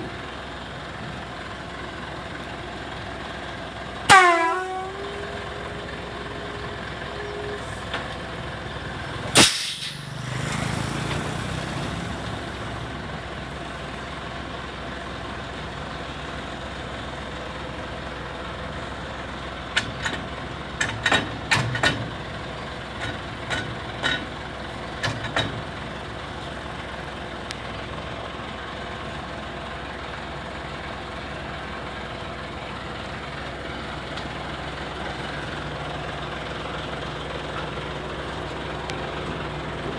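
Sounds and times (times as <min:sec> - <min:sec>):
dump truck running: 0:00.0 - 0:39.9
air horn blast: 0:04.1 - 0:06.5
air brake release: 0:09.3 - 0:10.2.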